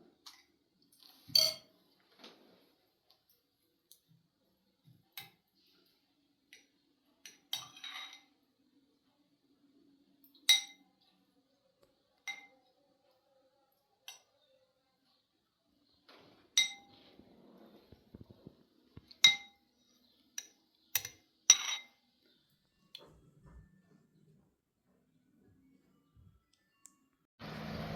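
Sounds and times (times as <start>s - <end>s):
cutlery clinking against dishes: 0.3s - 1.8s, 6.5s - 8.4s, 10.3s - 11.0s, 12.2s - 12.7s, 16.5s - 17.0s, 19.1s - 19.6s, 20.4s - 22.0s.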